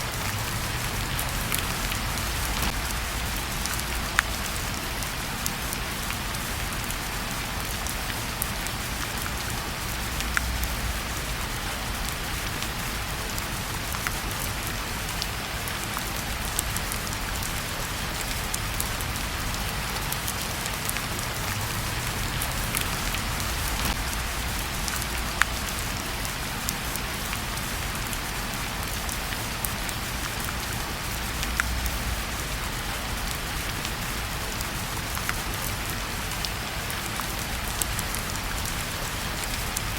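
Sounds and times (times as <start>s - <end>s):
steady rain falling: 0.0s - 39.9s
fireplace crackling and popping: 0.2s - 5.1s, 20.2s - 25.9s.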